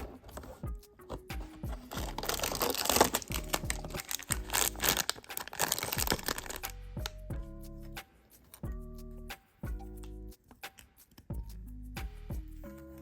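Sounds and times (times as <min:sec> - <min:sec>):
soft background music: 0:00.0 - 0:13.0
packaging torn and crinkled: 0:01.8 - 0:06.8.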